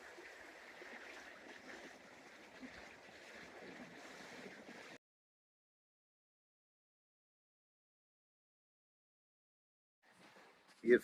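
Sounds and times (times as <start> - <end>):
small stream flowing: 0.0 - 5.0, 10.1 - 11.0.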